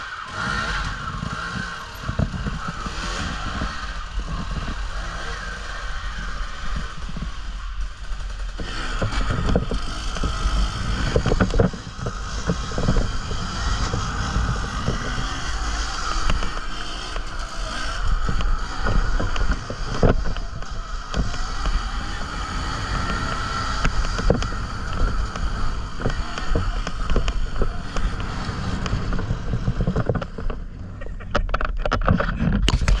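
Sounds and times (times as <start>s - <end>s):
dirt bike engine whine: 0.0s - 33.0s
wind rumble on microphone: 0.0s - 33.0s.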